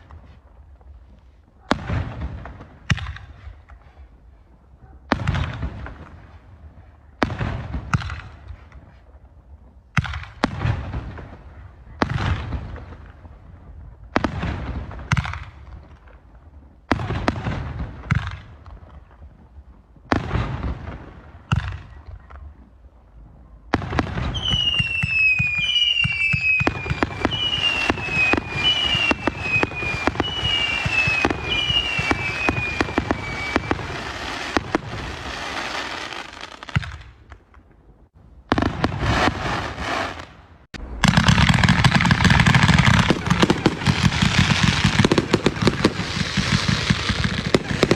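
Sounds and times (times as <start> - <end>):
firework bangs: 23.7 - 37.4, 38.5 - 47.9
firecrackers crackling: 24.1 - 37.6, 38.5 - 47.9
falling firework whistles: 24.2 - 36.7.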